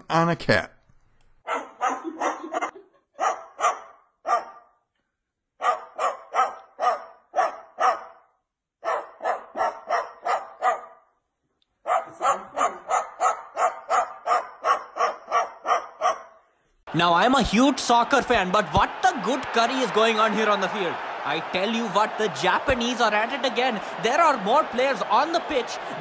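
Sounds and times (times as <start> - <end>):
bird imitating dog barks: 1.5 - 2.4, 3.2 - 4.7, 5.6 - 11.1, 11.8 - 16.5.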